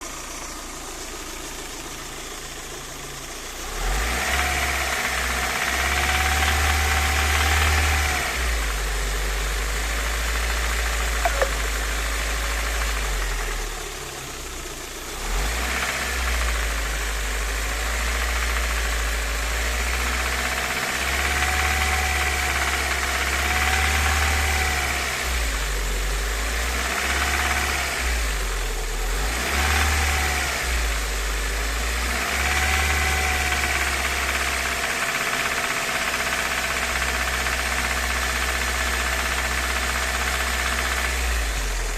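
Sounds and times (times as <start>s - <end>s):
car engine idling and revving: 0.0s - 41.9s
engine rattle: 0.0s - 41.9s.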